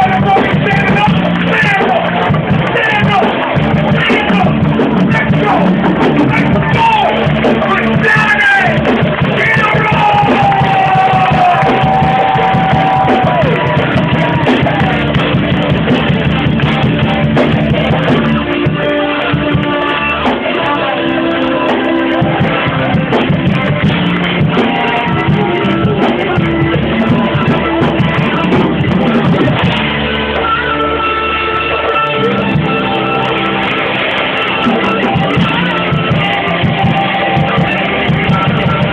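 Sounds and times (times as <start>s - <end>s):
live band playing: 0.0s - 38.9s
person singing: 2.7s - 29.7s.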